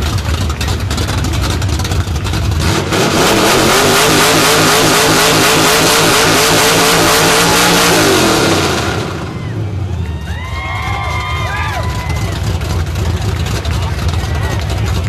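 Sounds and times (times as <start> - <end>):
engine revving through open headers: 0.6 - 9.9.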